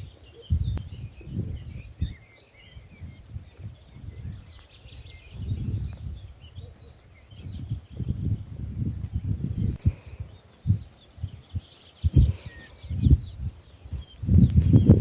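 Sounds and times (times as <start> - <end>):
songbirds chirping: 0.0 - 15.0
wind noise on microphone: 0.0 - 15.0.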